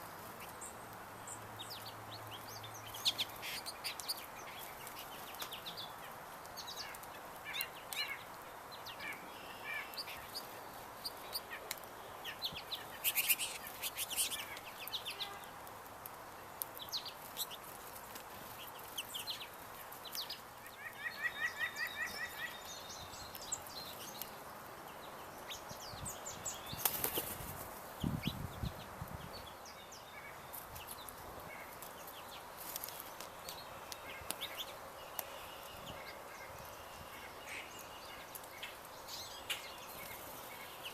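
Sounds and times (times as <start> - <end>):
birds chirping: 0.0 - 40.9
wing flutters: 26.7 - 28.2.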